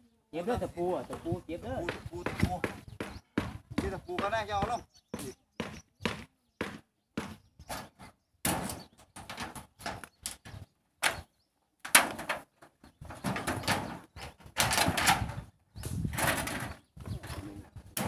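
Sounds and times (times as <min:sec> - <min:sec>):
knocks and clatters: 0:11.9 - 0:15.4.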